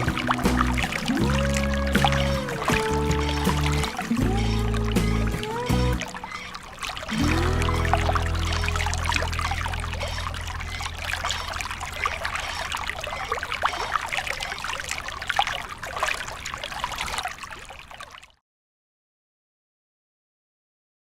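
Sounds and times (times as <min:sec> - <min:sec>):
low hum: 0:00.0 - 0:14.0
water trickling in a stream: 0:00.0 - 0:18.4.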